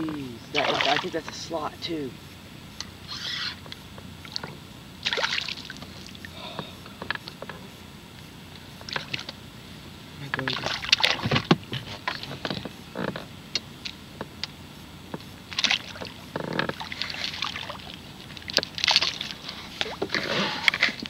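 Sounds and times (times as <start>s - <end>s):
water splashing: 0.0s - 2.0s, 4.2s - 6.3s, 10.2s - 12.4s, 15.5s - 21.0s
knocks and clicks against boat: 10.2s - 14.3s, 15.1s - 17.3s.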